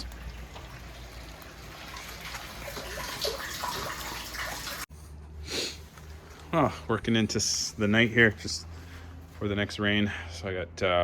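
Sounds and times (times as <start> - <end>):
water running into rain barrel: 0.0 - 4.9.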